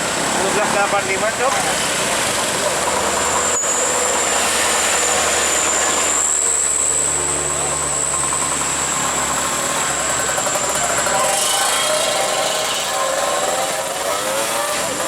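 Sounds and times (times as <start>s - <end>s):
engine idling: 7.4s - 11.5s.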